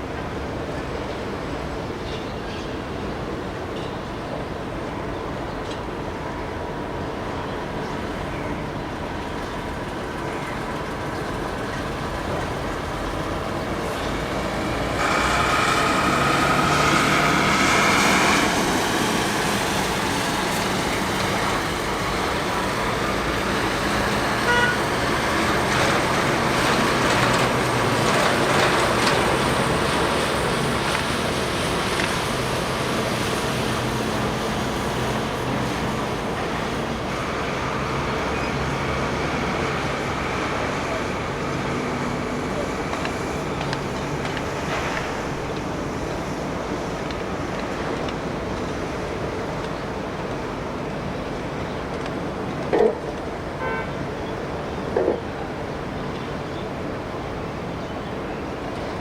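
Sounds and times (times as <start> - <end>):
high jet whine: 2.8 - 51.6
jet engines rushing: 3.1 - 59.0.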